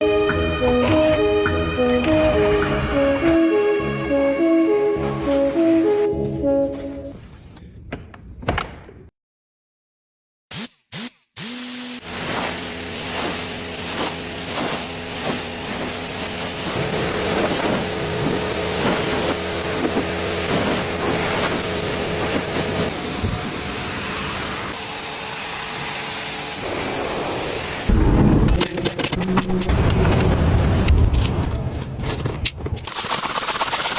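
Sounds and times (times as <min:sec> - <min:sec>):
spraying hiss: 0:12.0 - 0:18.1.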